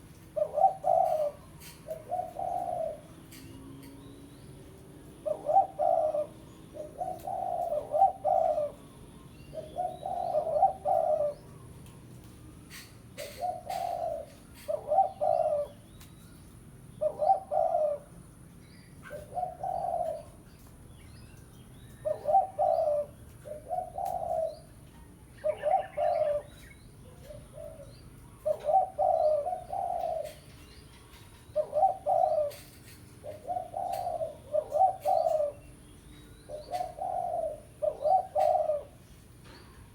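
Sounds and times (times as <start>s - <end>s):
dove cooing: 0.0s - 3.5s, 4.6s - 15.9s, 17.0s - 18.3s, 19.0s - 20.7s, 21.9s - 35.8s, 36.4s - 39.9s
faint bird chirps: 18.6s - 32.7s.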